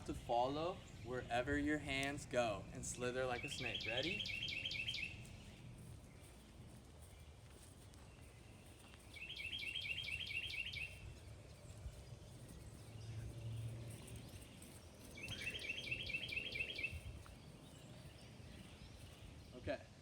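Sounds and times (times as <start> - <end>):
faint background noise: 0.0 - 20.0
songbird singing: 0.0 - 20.0.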